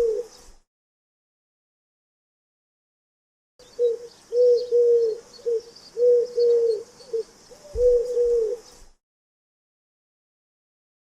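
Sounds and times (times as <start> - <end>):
bird low hooting calls: 0.0 - 0.5, 3.6 - 8.9.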